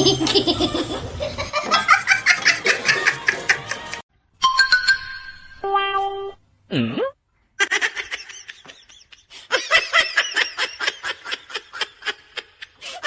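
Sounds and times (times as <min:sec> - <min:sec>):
people laughing: 0:00.0 - 0:04.0, 0:07.6 - 0:13.0.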